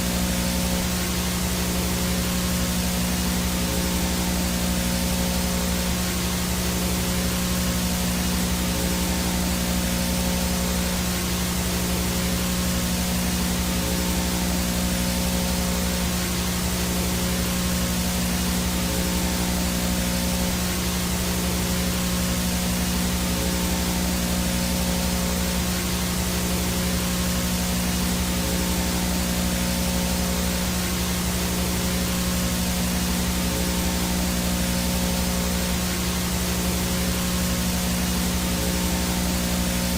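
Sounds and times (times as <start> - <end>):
buzzing hum: 0.0 - 39.9
faint high whine: 0.0 - 39.9
vhs static hiss: 0.0 - 39.9.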